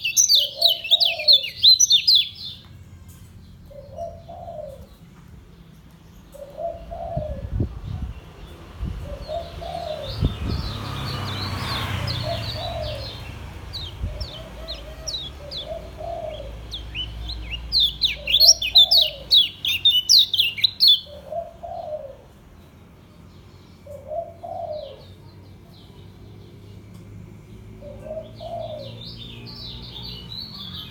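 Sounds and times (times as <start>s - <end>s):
dove cooing: 0.0s - 2.1s, 3.7s - 5.0s, 6.3s - 7.6s, 9.0s - 10.2s, 12.2s - 22.3s, 23.8s - 25.1s, 27.8s - 29.1s
bird twittering: 0.0s - 2.6s, 12.0s - 22.0s.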